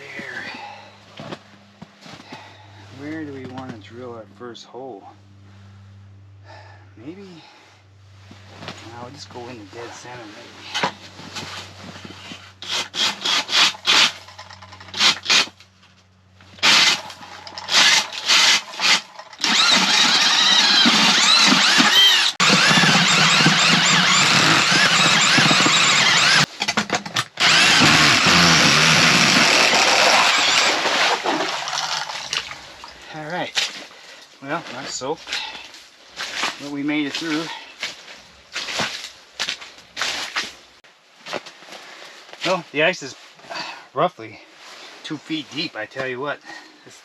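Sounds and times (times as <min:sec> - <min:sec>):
power ice auger motor: 0:12.6 - 0:15.5, 0:16.5 - 0:26.5, 0:27.4 - 0:32.4.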